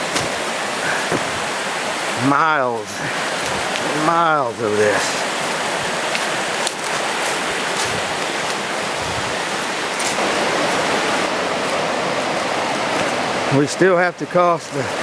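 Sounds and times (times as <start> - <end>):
river rapids rushing: 0.0 - 15.0.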